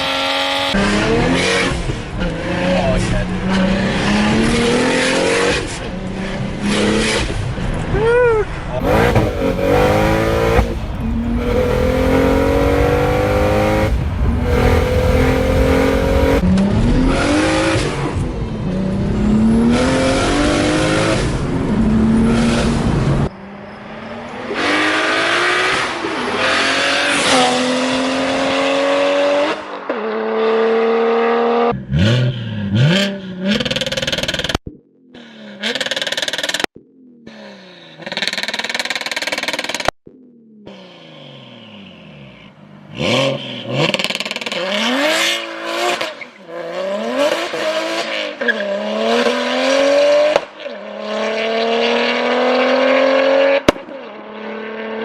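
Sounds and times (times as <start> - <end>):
car engine accelerating: 8.6 - 34.6.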